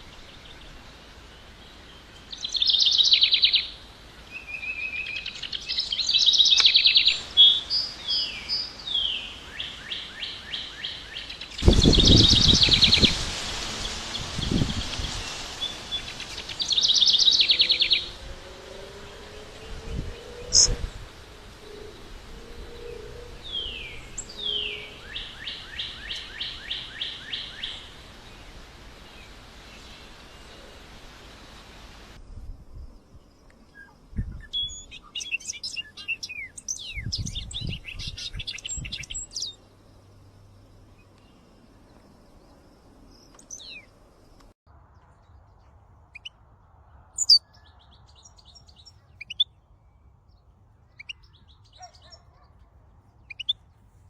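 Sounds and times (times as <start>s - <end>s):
background hiss: 0.0s - 36.9s
songbirds chirping: 0.0s - 54.0s.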